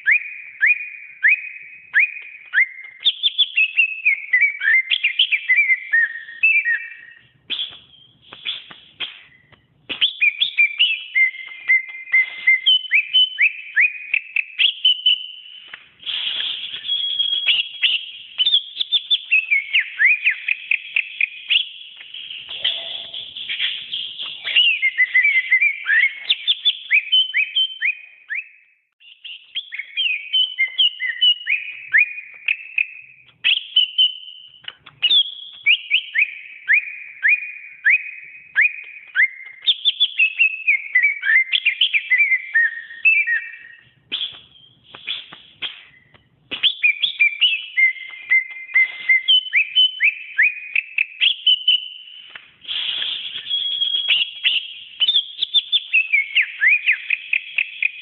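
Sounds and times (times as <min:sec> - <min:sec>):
bird singing whistled notes: 0:00.0 - 0:58.0.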